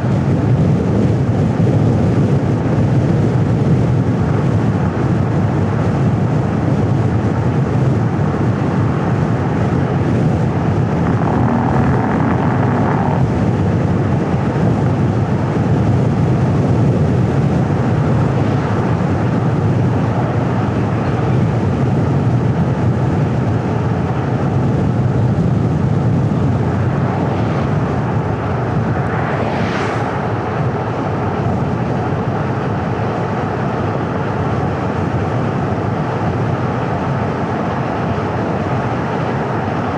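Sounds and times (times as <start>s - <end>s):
road and traffic noise: 7.5s - 39.9s
vehicle passing whoosh: 10.6s - 13.8s, 26.3s - 31.3s.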